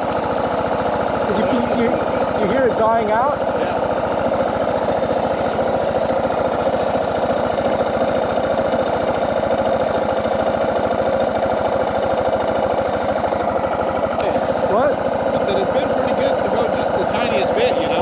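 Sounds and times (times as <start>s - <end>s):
motorcycle engine idling: 0.0s - 18.0s
man talking: 1.3s - 3.8s, 14.2s - 18.0s.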